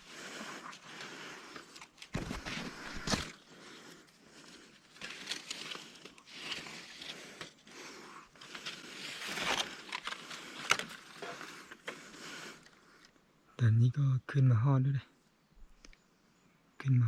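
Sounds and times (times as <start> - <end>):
rustling and scraping: 0.0 - 12.8.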